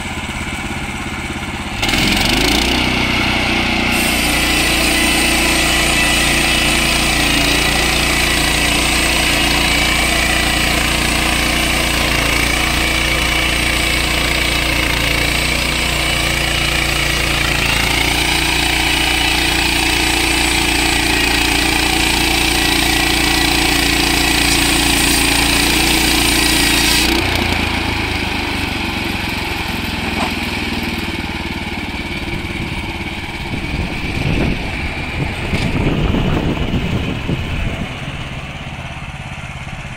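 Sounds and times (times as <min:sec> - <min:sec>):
petrol engine running: 0:00.0 - 0:39.9
saw blade hissing through log: 0:03.7 - 0:15.9, 0:16.9 - 0:27.4.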